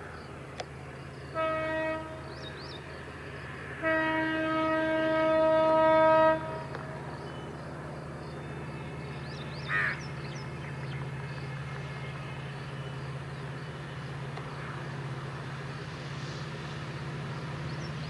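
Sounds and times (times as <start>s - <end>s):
locomotive horn: 1.3s - 2.3s, 3.8s - 7.0s
diesel engine rumble: 6.4s - 18.0s
crow cawing: 9.7s - 10.0s.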